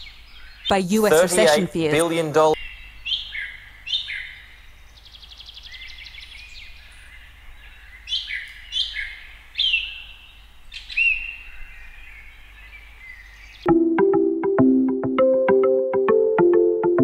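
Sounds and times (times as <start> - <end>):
songbirds chirping: 0.0 - 13.7.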